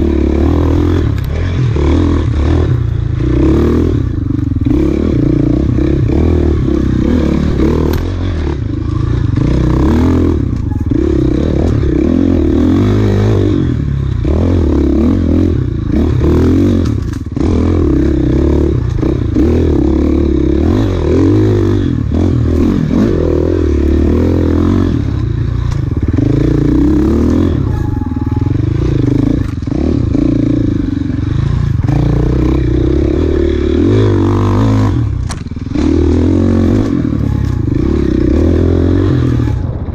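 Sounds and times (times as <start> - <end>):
dirt bike engine revving: 0.0 - 39.9
bike clattering and scraping: 6.6 - 14.9, 15.6 - 20.8, 21.7 - 39.9.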